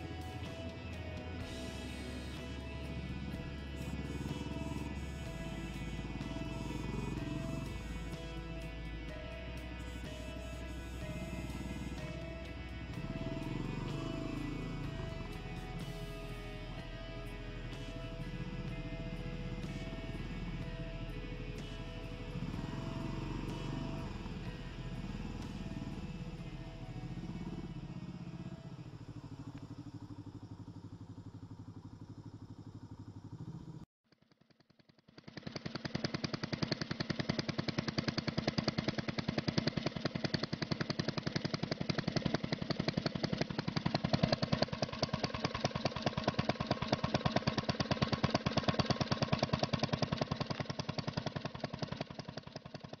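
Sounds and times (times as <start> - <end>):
background music: 0.0 - 29.7
motorcycle engine idling: 0.0 - 53.0.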